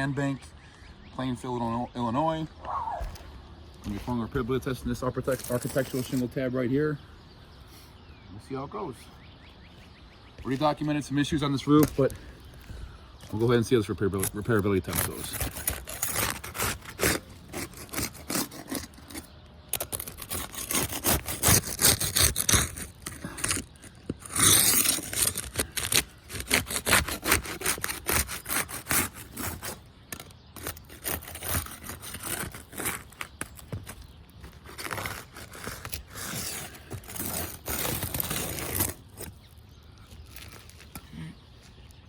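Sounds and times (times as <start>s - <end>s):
metal tool scraping shingles: 4.6s - 6.4s, 11.3s - 12.2s, 13.2s - 39.6s.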